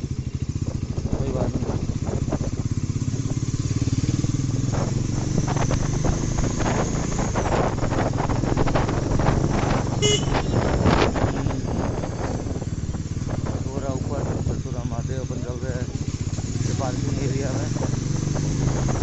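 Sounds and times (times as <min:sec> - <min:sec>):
motorcycle engine running: 0:00.0 - 0:19.0
horn beep: 0:10.0 - 0:10.8.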